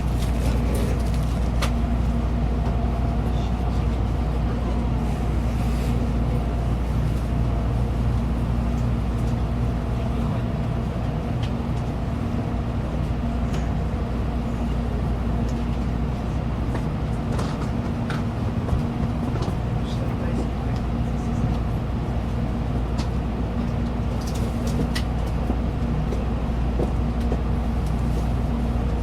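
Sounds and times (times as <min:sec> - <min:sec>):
train car hum and rumble: 0:00.0 - 0:29.0.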